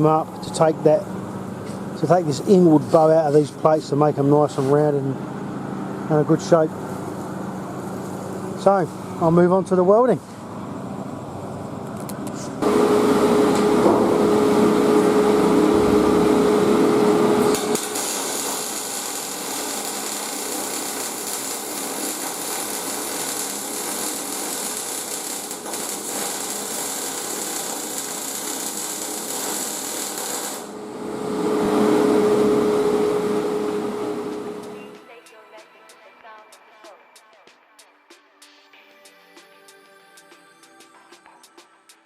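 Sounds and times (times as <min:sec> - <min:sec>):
arc welding crackle: 0:12.6 - 0:30.8
humming power tool: 0:12.6 - 0:34.9.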